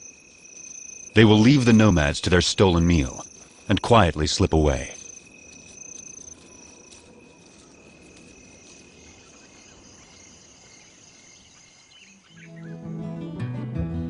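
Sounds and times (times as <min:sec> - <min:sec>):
night ambience hiss: 0:00.0 - 0:12.6
crickets chirping: 0:00.0 - 0:12.8.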